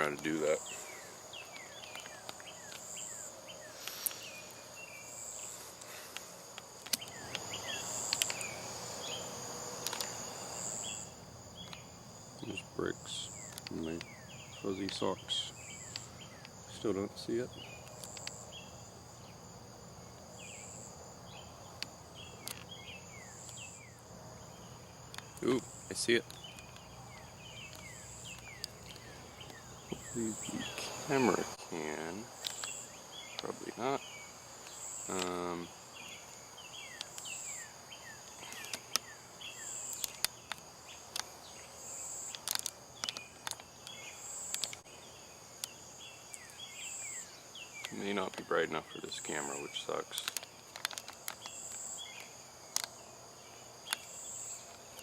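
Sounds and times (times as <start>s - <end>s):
crickets trilling: 0.0s - 55.0s
sharp clicks: 5.8s - 8.6s, 9.8s - 10.2s, 11.6s - 18.5s, 21.7s - 23.8s, 25.1s - 31.5s, 34.6s - 35.5s, 39.8s - 41.3s, 42.2s - 44.8s, 49.1s - 53.0s.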